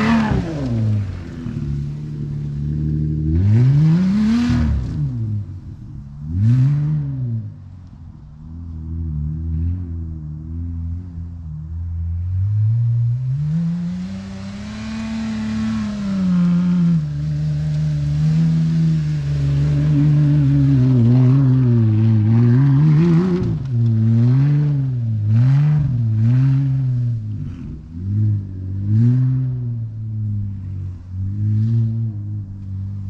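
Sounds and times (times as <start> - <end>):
car engine idling and revving: 0.0 - 33.0.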